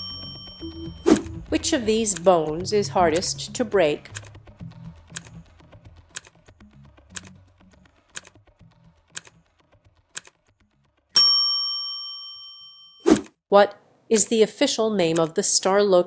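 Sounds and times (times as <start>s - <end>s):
bright bell chime: 0.0s - 1.1s, 11.2s - 13.0s
clock-like ticks: 0.0s - 6.4s, 7.1s - 7.4s, 8.1s - 8.4s, 9.1s - 9.4s, 10.1s - 10.4s, 15.1s - 15.3s.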